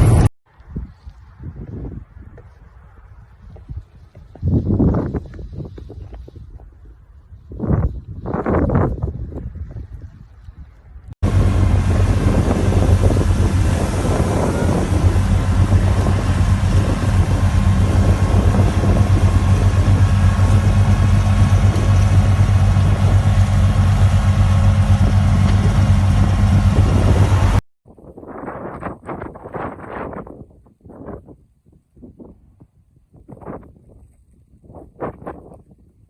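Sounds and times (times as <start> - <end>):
vehicle engine humming: 0.0 - 0.3, 9.2 - 27.6
road and wind noise: 0.0 - 36.0.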